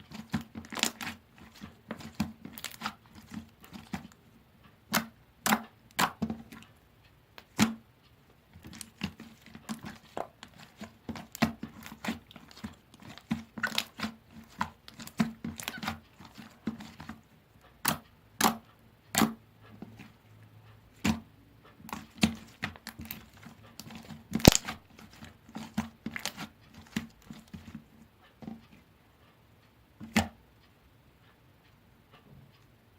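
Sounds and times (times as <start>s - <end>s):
slime clicking and popping: 0.2s - 4.2s, 4.9s - 6.6s, 8.6s - 16.0s, 23.8s - 27.0s.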